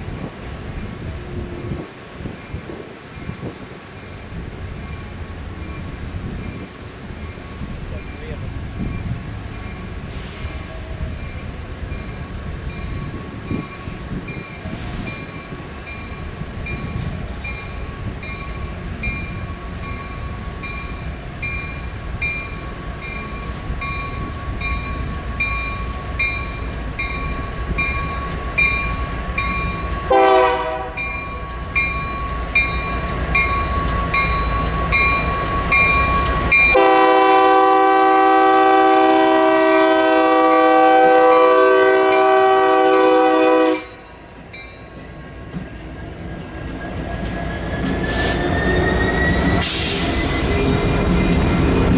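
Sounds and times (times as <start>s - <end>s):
low train rumble: 0.0s - 51.9s
crossing bell dinging: 3.2s - 38.4s, 43.7s - 46.0s, 50.4s - 51.9s
train horn blasts: 30.0s - 31.1s, 36.7s - 44.0s.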